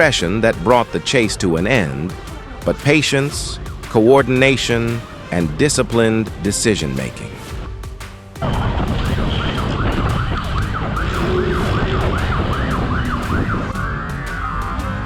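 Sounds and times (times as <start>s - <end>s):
heavy low rumble: 7.6s - 15.0s
police siren: 8.4s - 15.0s.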